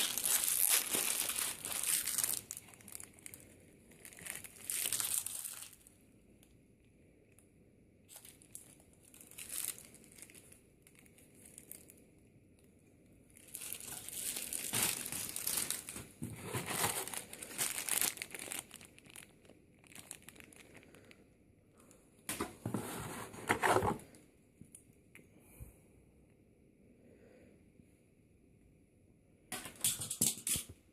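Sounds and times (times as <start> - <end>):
packaging crinkling and rustling: 0.0 - 5.9, 8.1 - 12.0, 13.3 - 21.2, 22.3 - 24.2.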